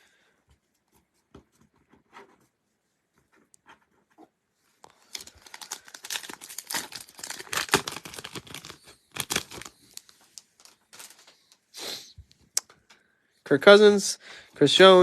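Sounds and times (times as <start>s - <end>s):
plastic wrapper tearing and crinkling: 4.9s - 11.3s.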